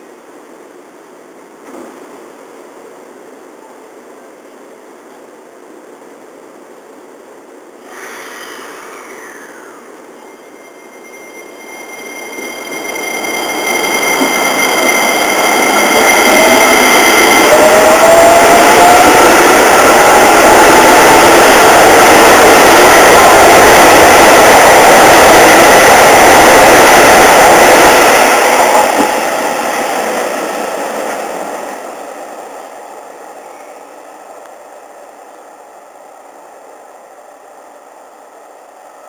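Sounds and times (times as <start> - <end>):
electric train pulling away: 7.8 - 37.5.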